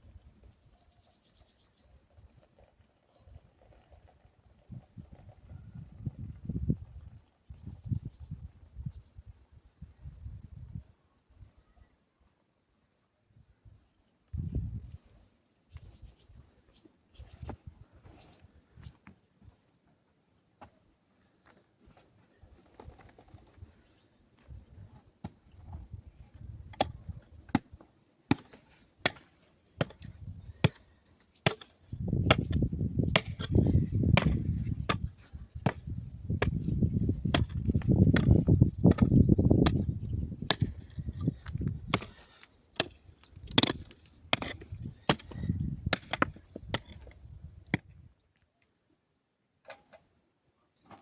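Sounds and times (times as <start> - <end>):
hand tool striking stone: 26.7 - 47.9.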